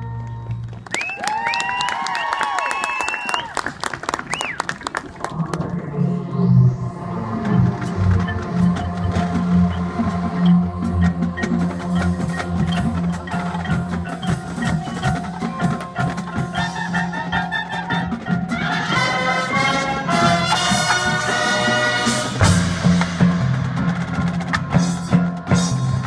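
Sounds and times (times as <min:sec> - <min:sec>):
sustained low tones: 0:04.4 - 0:17.4
ringing mallet percussion notes: 0:07.6 - 0:19.8.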